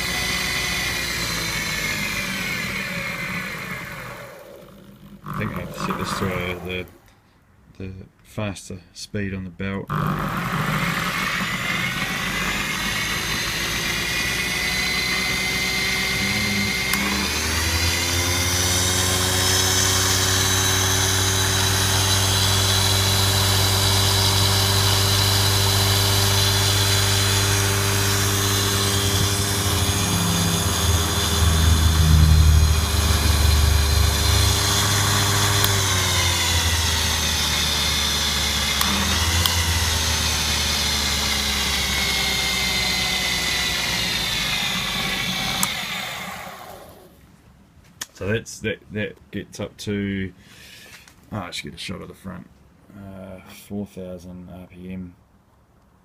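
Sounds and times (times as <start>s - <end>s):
lathe motor whining: 0.0s - 7.1s, 9.9s - 47.2s.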